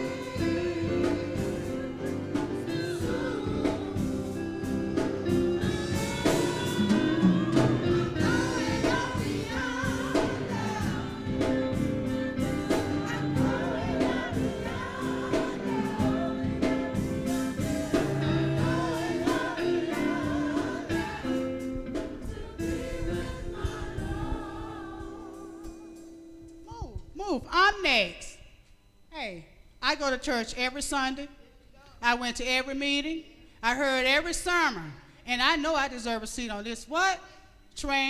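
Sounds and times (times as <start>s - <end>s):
steady drum beat: 0.0s - 25.6s
voices singing with vibrato: 0.0s - 26.4s
sustained instrumental chords: 0.0s - 26.8s.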